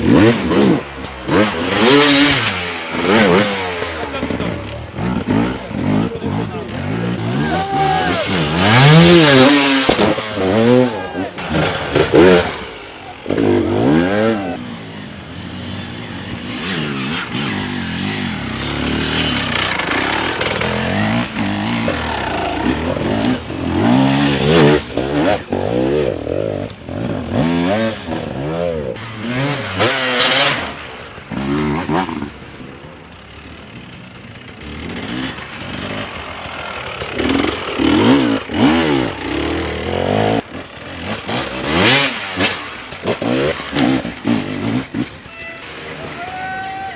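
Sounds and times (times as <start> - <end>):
dirt bike engines revving: 0.0 - 46.9.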